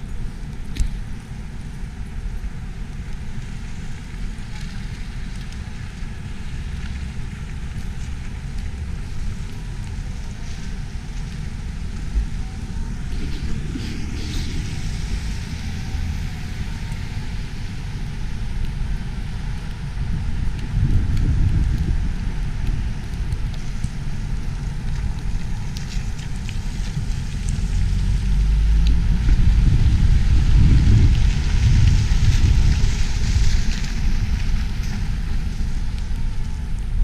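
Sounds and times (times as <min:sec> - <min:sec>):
city traffic rumble: 0:00.0 - 0:37.0
wind buffeting microphone: 0:06.0 - 0:37.0
vehicle passing by: 0:12.0 - 0:17.9.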